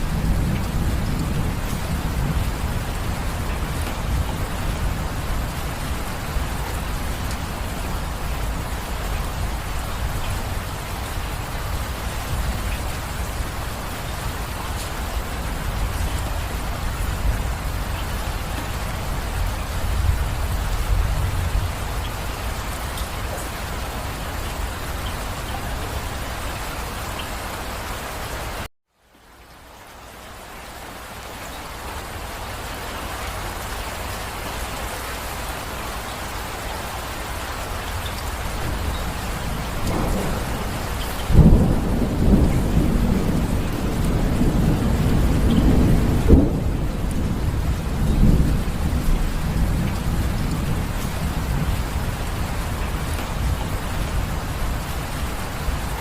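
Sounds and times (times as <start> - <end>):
rolling thunder: 0.0 - 23.4, 38.3 - 56.0
steady rain: 0.0 - 56.0.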